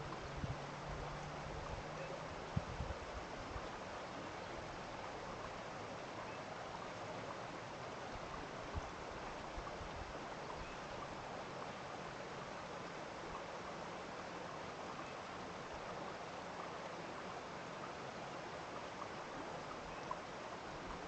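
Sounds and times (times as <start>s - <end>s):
stream rushing: 0.0s - 21.0s.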